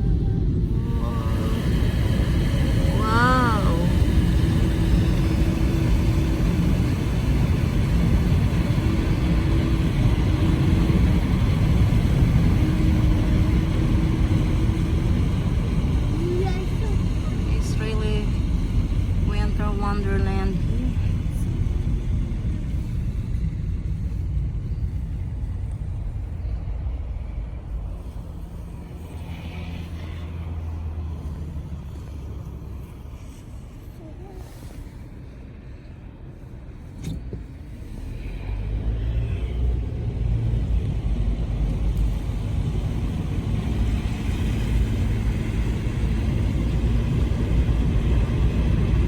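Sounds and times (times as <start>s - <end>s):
faint hum: 0.0s - 32.0s
car interior road rumble: 0.0s - 49.0s.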